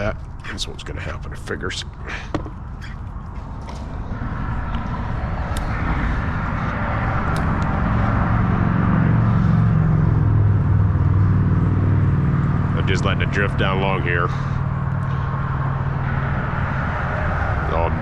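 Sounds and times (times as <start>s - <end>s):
traffic crossing bridge overhead: 0.0s - 18.0s.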